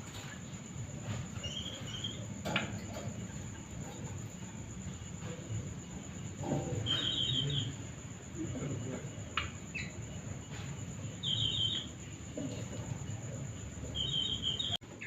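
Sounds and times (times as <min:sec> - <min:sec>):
songbird trilling: 0:01.4 - 0:02.3, 0:06.8 - 0:07.8, 0:09.7 - 0:10.0, 0:11.2 - 0:12.0, 0:13.9 - 0:14.8.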